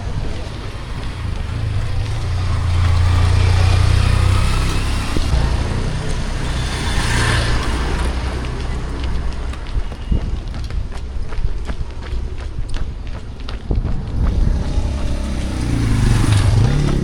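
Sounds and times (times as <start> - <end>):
traffic passing: 0.0 - 17.0
vehicle engine running: 13.4 - 17.0.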